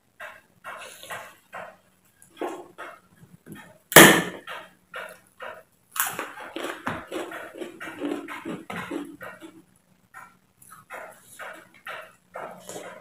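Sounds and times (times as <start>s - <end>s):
chewing crisp cracker: 5.9s - 13.0s.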